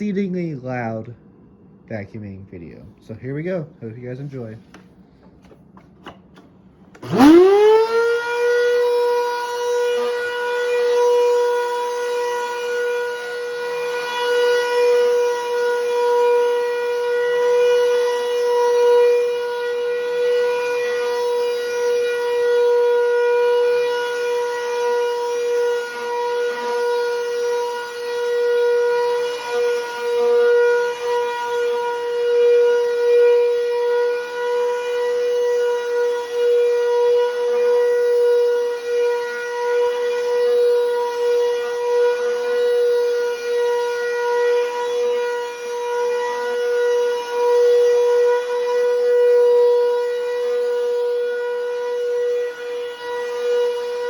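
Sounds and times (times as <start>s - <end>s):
vacuum motor high-pitched whine: 5.4s - 54.0s.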